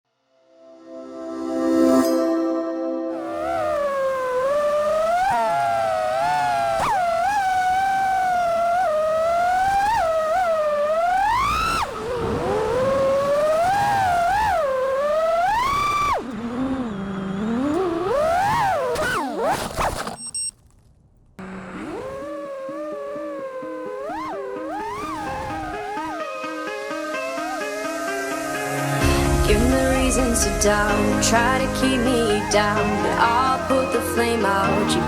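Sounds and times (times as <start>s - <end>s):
drone motors whining: 3.1s - 35.0s.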